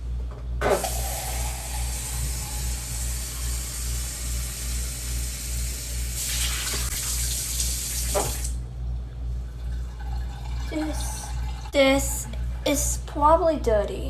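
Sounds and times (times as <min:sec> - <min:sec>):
tap water running into sink: 0:06.2 - 0:08.6.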